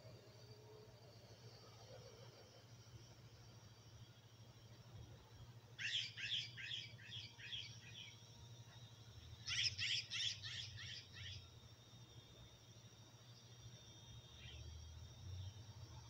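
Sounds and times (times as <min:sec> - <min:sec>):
small bird chirping: 0:05.8 - 0:11.6.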